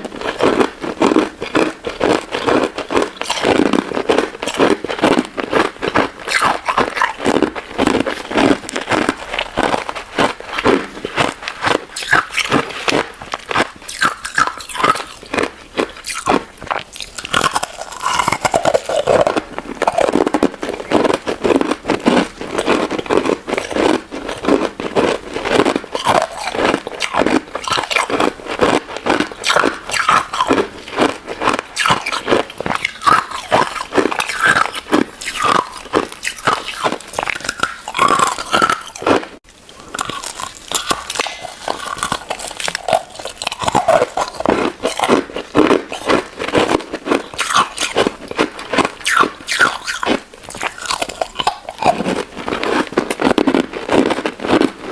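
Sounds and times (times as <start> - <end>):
crunching and chewing: 0.0 - 54.9.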